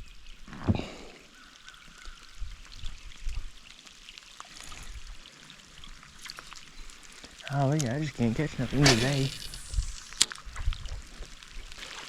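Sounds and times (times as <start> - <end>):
light rain falling: 0.0 - 12.0
wind rumbling on microphone: 8.0 - 11.8.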